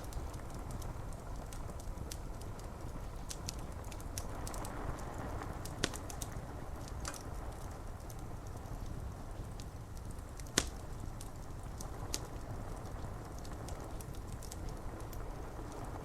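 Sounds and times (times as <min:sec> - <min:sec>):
steady rain hiss: 0:00.0 - 0:16.0
wood fire crackling: 0:00.0 - 0:16.0.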